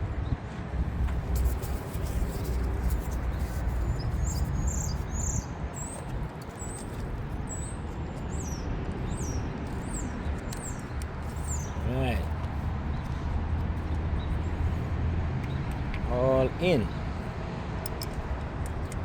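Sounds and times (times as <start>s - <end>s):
small bird chirping: 2.1s - 13.2s.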